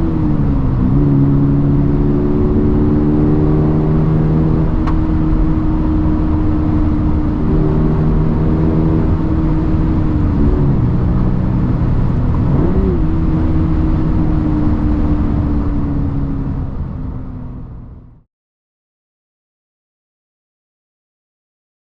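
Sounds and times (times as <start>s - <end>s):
engine revving: 0.0s - 16.9s
car engine running: 0.0s - 18.2s.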